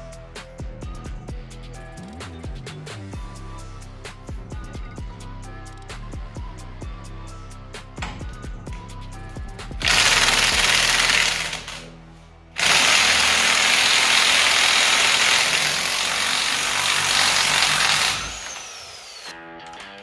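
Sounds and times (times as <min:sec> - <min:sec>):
background music: 0:00.0 - 0:20.0
power tool running: 0:09.8 - 0:11.9, 0:12.6 - 0:19.4.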